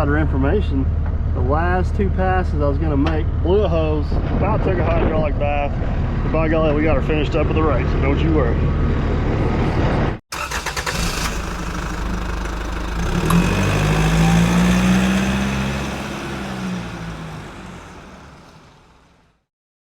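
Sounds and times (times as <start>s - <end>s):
diesel engine running: 8.6s - 19.4s.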